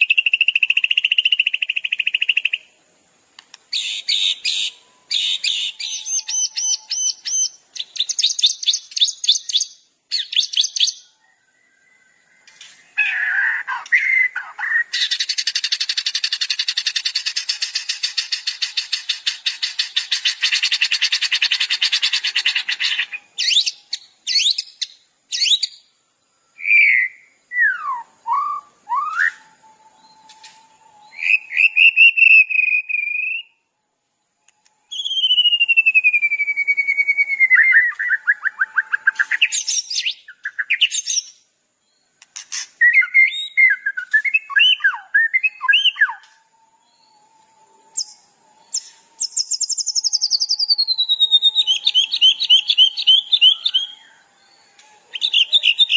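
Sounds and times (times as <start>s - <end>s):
bird chirps and whistles: 0.0s - 2.7s, 3.7s - 25.8s, 26.6s - 33.6s, 34.6s - 41.4s, 42.4s - 47.3s, 47.9s - 55.9s
long falling bird whistle: 0.0s - 2.8s, 3.7s - 41.4s, 42.8s - 55.9s
songbird buzzing trill: 3.7s - 25.9s, 34.5s - 55.9s.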